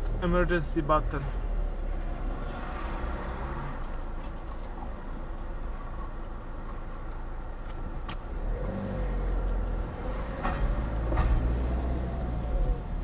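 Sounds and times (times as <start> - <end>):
car engine accelerating: 7.6 - 13.0.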